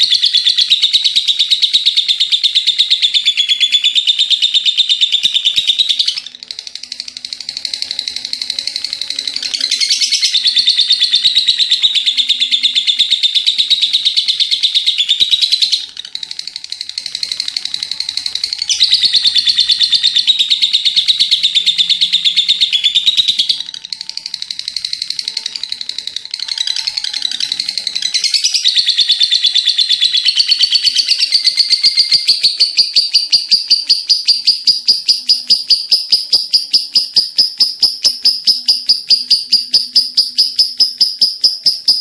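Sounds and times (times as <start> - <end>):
lovebird high-pitched trilling: 0.0 - 42.0.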